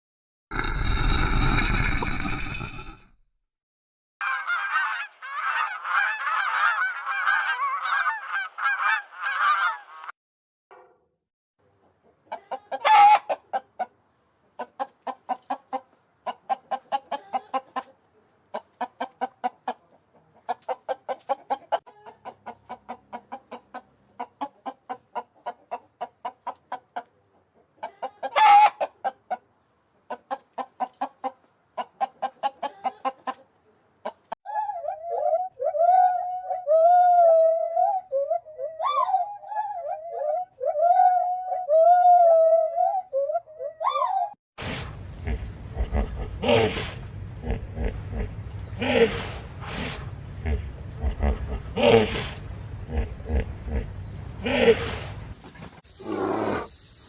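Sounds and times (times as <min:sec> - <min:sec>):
domestic fowl calling: 0:04.2 - 0:10.1, 0:12.2 - 0:14.0, 0:27.8 - 0:29.5
louder fowl cries: 0:04.2 - 0:10.1, 0:12.7 - 0:13.4, 0:28.0 - 0:28.9.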